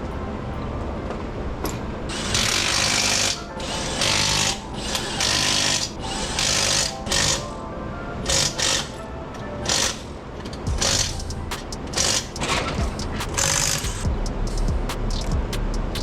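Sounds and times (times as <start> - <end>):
background music: 0.0 - 16.0
impact wrench bursts: 2.1 - 7.4, 10.7 - 16.0.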